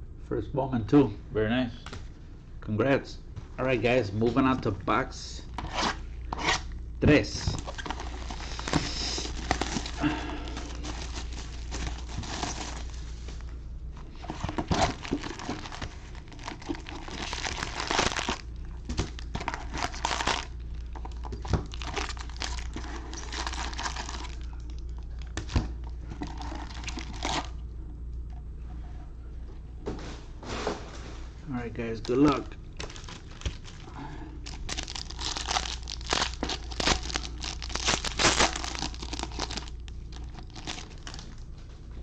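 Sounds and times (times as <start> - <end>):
plastic packaging crinkling and tearing: 7.3 - 13.5, 14.1 - 27.6, 31.8 - 41.4.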